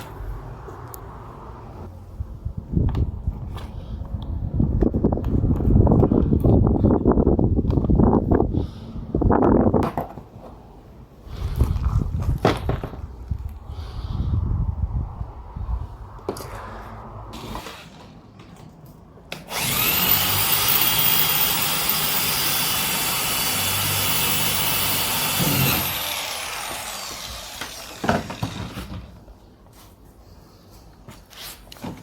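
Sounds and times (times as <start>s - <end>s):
handheld power tool running: 19.5s - 28.9s.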